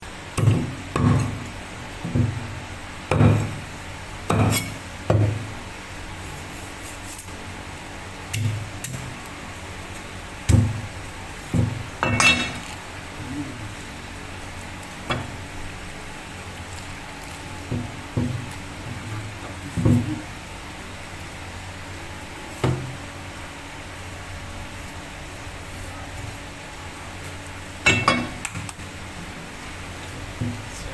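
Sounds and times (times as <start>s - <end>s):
knife chopping on cutting board: 4.3s - 5.4s.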